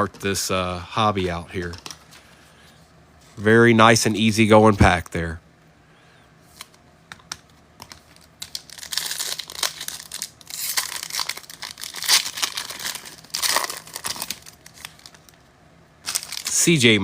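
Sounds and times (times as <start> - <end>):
wrapper tearing and crinkling: 8.0 - 15.4, 16.0 - 16.8.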